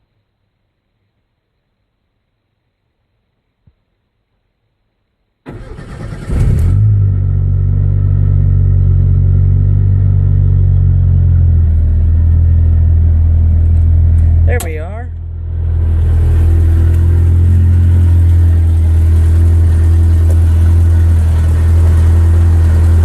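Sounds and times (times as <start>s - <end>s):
engine starter cranking: 5.4s - 6.9s
loud engine idling: 8.8s - 23.0s.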